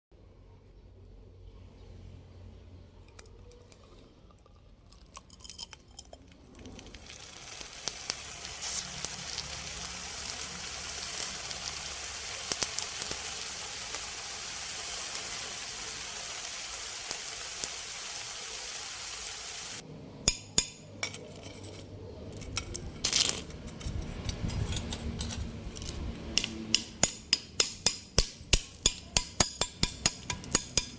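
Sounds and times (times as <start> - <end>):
molten metal crackling and sizzling: 5.2 - 30.9
sharp metallic taps: 26.3 - 30.9.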